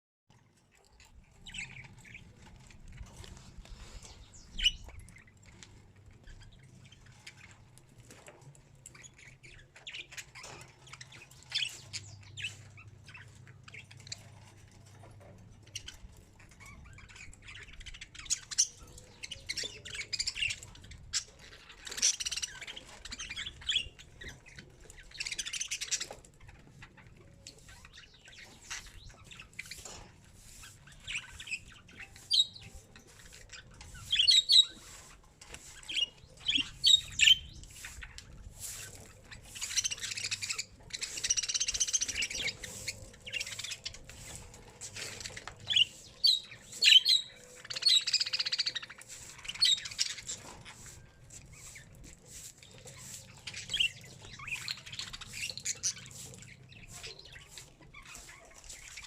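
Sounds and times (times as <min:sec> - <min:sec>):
bird chirps and squawks: 0:15.8 - 0:59.0
bird harsh chattering calls: 0:33.9 - 0:35.1, 0:35.8 - 0:51.0, 0:51.6 - 0:59.0.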